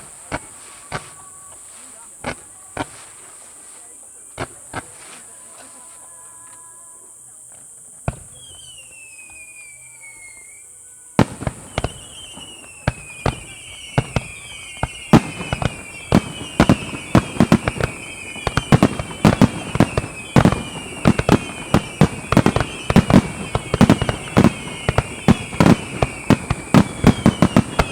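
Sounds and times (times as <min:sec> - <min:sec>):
firework bangs: 0:00.0 - 0:05.3, 0:08.0 - 0:09.6, 0:11.2 - 0:27.9
falling firework whistles: 0:00.0 - 0:05.7, 0:08.0 - 0:27.9
firework shell bursts: 0:11.2 - 0:27.9.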